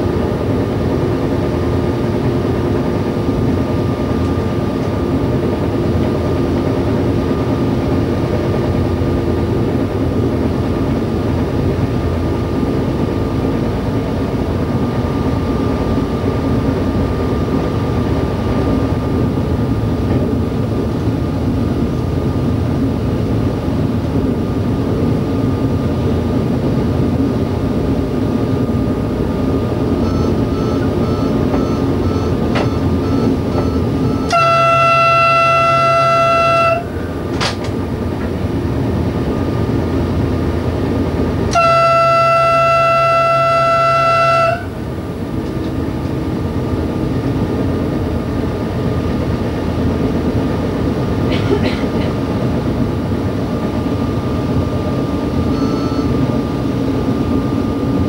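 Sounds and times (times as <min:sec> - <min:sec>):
train engine and wheel noise: 0:00.0 - 0:58.0
train horn blasts: 0:32.5 - 0:37.2, 0:41.5 - 0:44.9.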